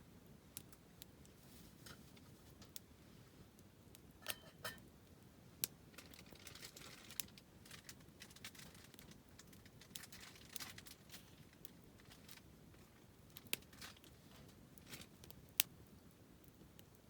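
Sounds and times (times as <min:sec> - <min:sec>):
faint hiss: 0:00.0 - 0:04.2
wood fire crackling: 0:00.0 - 0:17.0.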